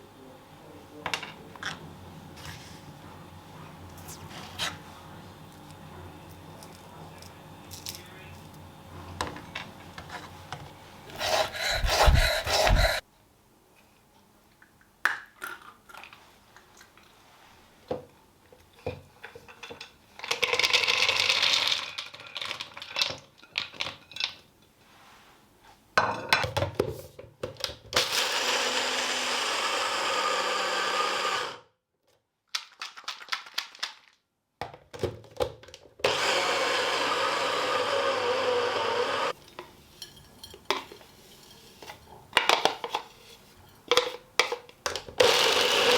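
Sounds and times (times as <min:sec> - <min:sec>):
small electric motor running: 0:11.2 - 0:13.0, 0:28.0 - 0:31.6, 0:36.1 - 0:39.4, 0:45.2 - 0:45.9.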